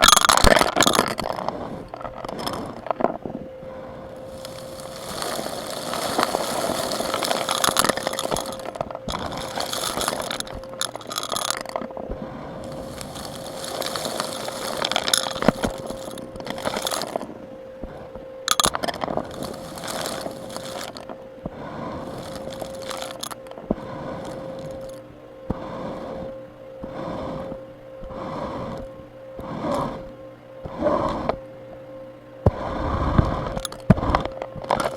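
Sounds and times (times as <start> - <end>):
debris clinking and rattling: 0.0 - 3.1, 4.2 - 12.0, 12.6 - 17.3, 18.5 - 21.2, 22.0 - 23.6, 24.2 - 25.0, 33.6 - 34.9
vacuum cleaner: 0.0 - 34.9.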